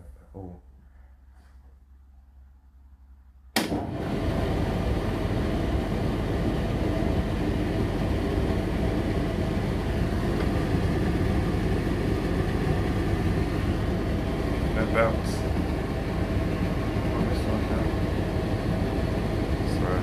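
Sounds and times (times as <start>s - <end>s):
dryer motor and fan running: 3.5s - 20.0s
tumble dryer switch click: 3.6s - 3.9s.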